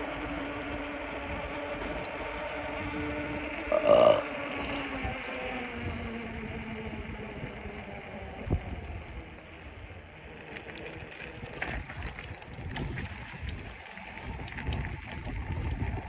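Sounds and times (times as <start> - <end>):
wind buffeting microphone: 0.0 - 10.4, 11.0 - 16.0.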